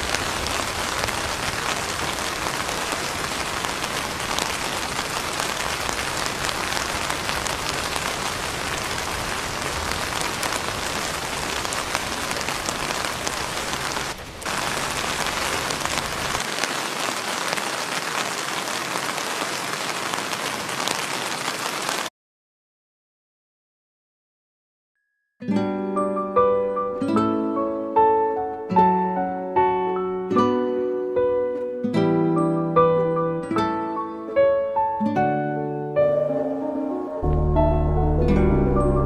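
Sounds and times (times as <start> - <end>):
heavy rain falling: 0.0 - 22.1, 36.6 - 39.0.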